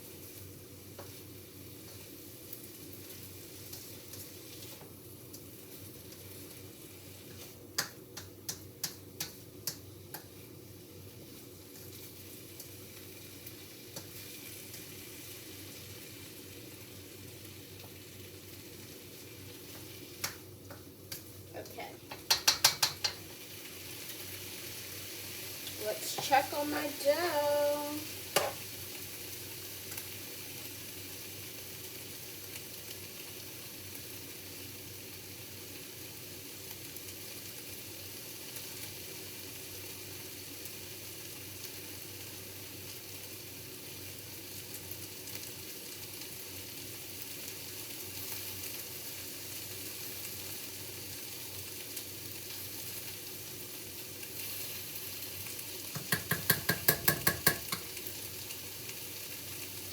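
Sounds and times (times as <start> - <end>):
vegetables sizzling in a pan: 0.0 - 59.9
pan clattering: 56.0 - 57.9.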